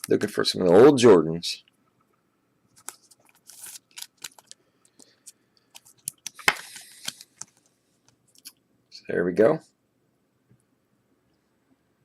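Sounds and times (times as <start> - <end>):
cardboard cards clicking and rustling: 2.8 - 4.6, 5.7 - 7.6.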